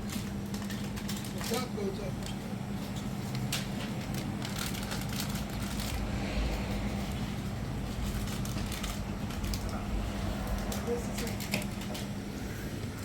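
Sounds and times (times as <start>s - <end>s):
engine humming: 3.8s - 13.0s.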